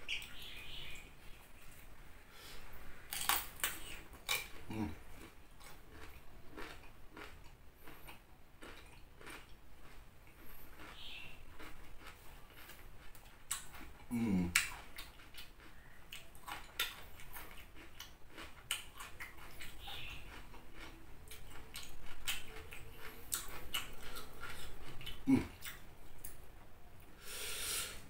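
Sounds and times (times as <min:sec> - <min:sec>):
crunchy chewing: 0:00.1 - 0:26.4.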